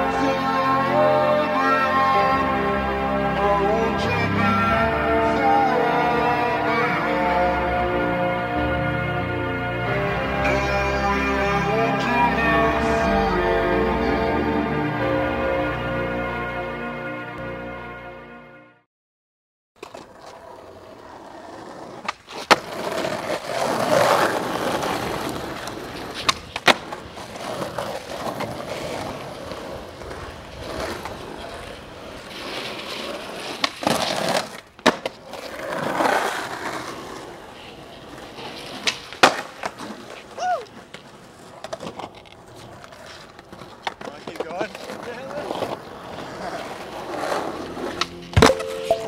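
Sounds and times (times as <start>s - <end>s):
skateboard wheels rolling on pavement: 0.0s - 17.8s, 19.8s - 49.0s
skateboard tail clacks: 19.8s - 49.0s.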